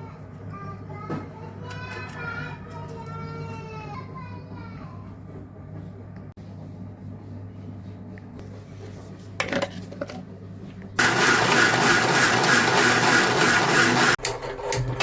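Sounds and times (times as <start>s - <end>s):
mixer grinder running: 11.0s - 15.0s.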